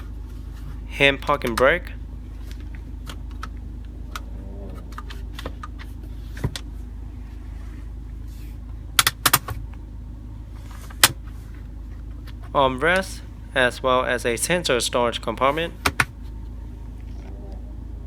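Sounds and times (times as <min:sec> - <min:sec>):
low steady hum: 0:00.0 - 0:18.0
car interior fittings clicking: 0:01.4 - 0:06.9, 0:08.6 - 0:09.9, 0:10.6 - 0:12.6, 0:15.4 - 0:17.7.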